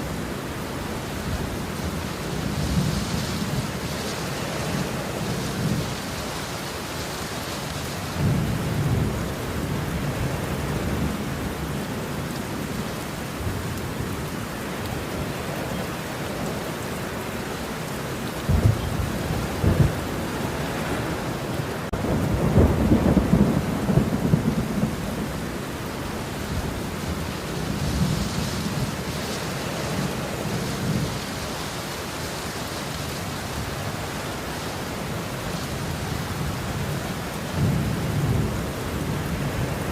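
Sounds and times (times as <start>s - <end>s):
steady rain: 0.0s - 39.9s
thunder rolling and cracking: 18.4s - 20.3s, 21.9s - 25.4s.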